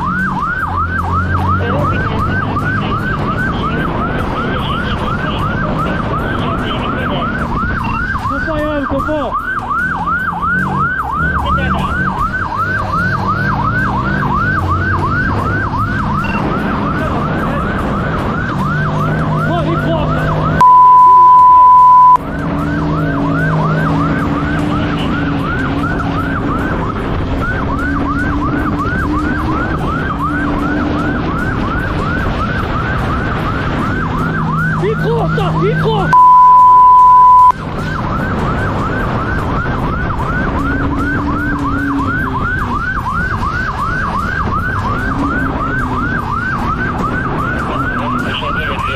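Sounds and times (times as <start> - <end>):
car engine: 0.0 - 48.9
police siren yelping: 0.0 - 48.9
loud steady beep: 6.5 - 8.4, 16.1 - 16.5, 20.6 - 22.2, 36.1 - 37.6.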